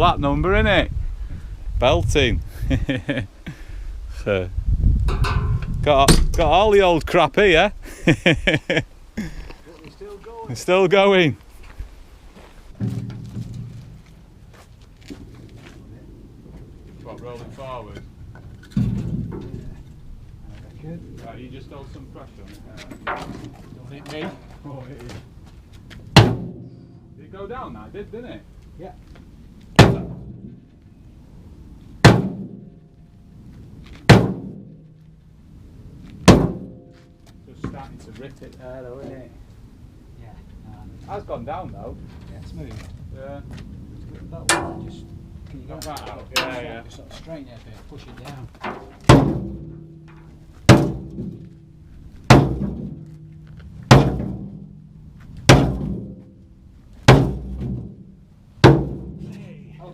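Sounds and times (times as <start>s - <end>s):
sledgehammer striking steel: 26.2s - 26.9s, 29.8s - 30.6s, 32.0s - 32.8s, 34.1s - 34.8s, 36.3s - 37.0s, 44.5s - 45.1s, 49.0s - 51.6s, 52.3s - 53.3s, 53.9s - 54.7s, 55.5s - 56.4s, 57.1s - 59.4s.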